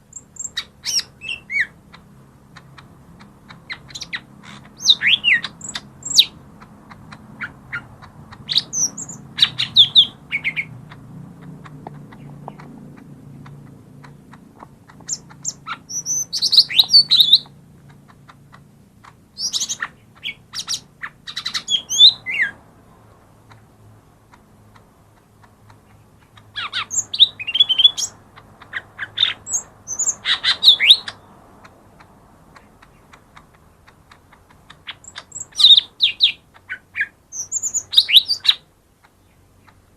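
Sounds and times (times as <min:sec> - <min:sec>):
bird chirping and whistling: 0:00.1 - 0:01.7, 0:03.7 - 0:06.3, 0:08.4 - 0:10.7, 0:15.1 - 0:17.5, 0:19.4 - 0:22.5, 0:26.6 - 0:28.2, 0:29.1 - 0:31.2, 0:34.9 - 0:36.4, 0:37.0 - 0:38.6.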